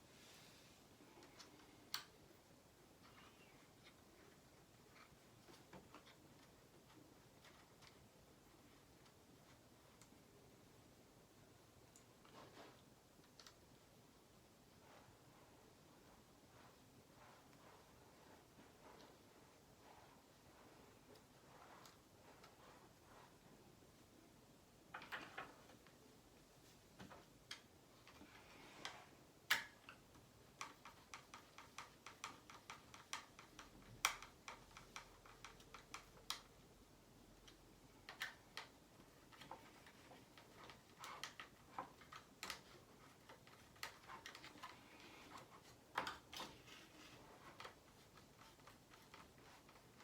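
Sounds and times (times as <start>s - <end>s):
small tools clicking and tapping: 28.8s - 36.5s.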